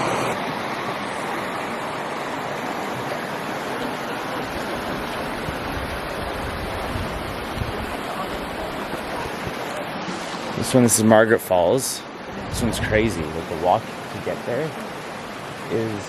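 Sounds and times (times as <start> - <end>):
rushing water: 0.0 - 16.0
low rumbling: 12.2 - 13.6.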